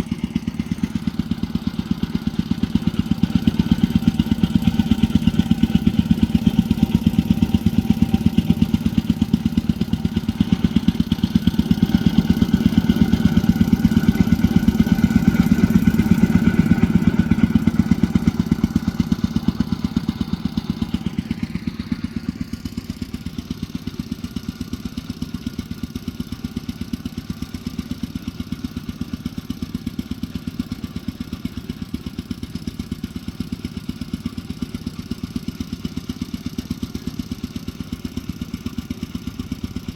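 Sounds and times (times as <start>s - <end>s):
engine running: 0.0s - 28.6s.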